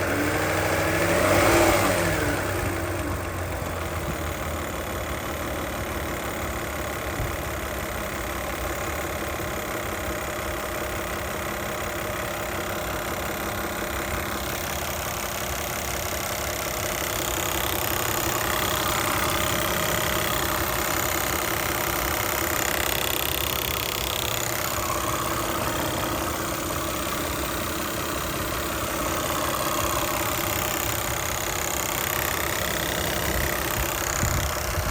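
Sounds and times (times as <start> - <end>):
car engine idling: 0.0 - 34.9
loud rapid ticking: 14.1 - 34.9.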